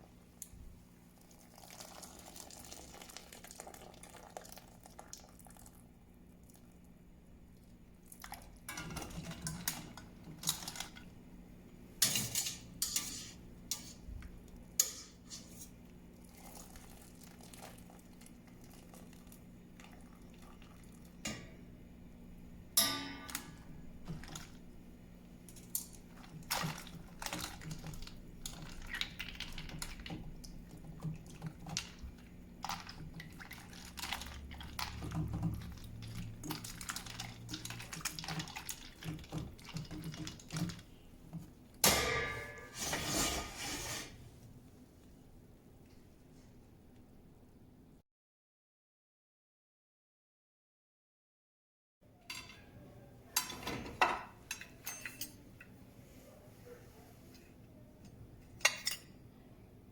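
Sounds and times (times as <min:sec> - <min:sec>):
kitchen utensils clinking: 0:12.0 - 0:14.0, 0:41.8 - 0:44.2, 0:52.2 - 0:55.7, 0:58.5 - 0:59.2.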